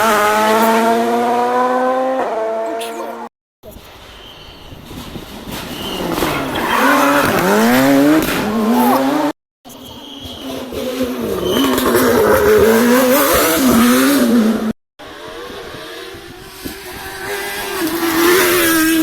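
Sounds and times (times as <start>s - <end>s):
rally car engine revving: 0.0s - 3.2s, 5.8s - 9.4s, 10.8s - 19.0s.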